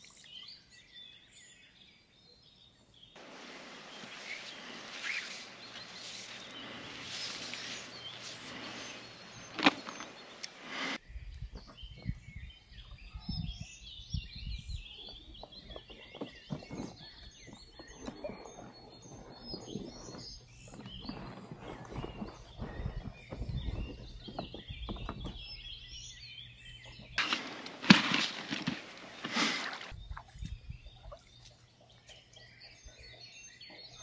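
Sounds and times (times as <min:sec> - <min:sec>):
small birds chirping: 0:00.0 - 0:34.0
steady outdoor hiss: 0:02.7 - 0:11.2, 0:22.0 - 0:33.6
low knocks and rustles: 0:15.7 - 0:25.6.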